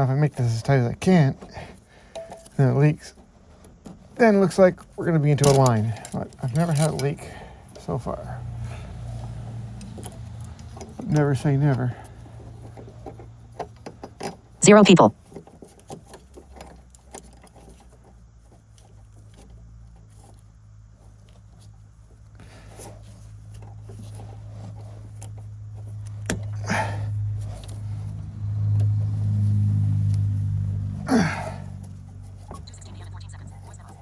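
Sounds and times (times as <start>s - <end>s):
low vehicle engine hum: 0.0s - 34.0s
hand tools on metal fitting: 2.1s - 2.6s, 5.3s - 7.2s.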